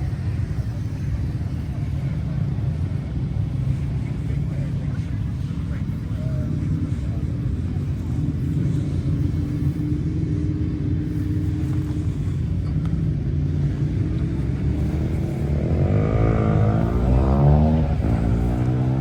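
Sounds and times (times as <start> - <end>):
motorcycle engines rumbling: 0.0 - 19.0
motorcycle engine revving: 6.6 - 19.0.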